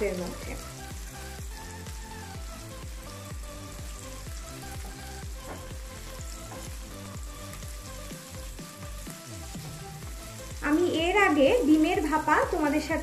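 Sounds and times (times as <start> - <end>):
background music with beat: 0.0 - 13.0
food sizzling in oil: 0.0 - 13.0
wooden spatula in pan: 4.6 - 9.8.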